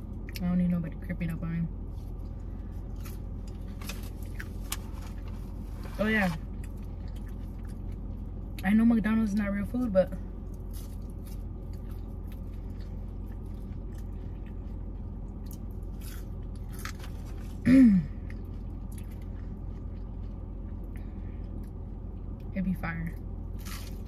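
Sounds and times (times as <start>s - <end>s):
steady low hum: 0.0s - 24.0s
chewing and biting food: 2.0s - 8.6s, 10.4s - 17.6s, 18.2s - 22.5s, 23.5s - 24.0s.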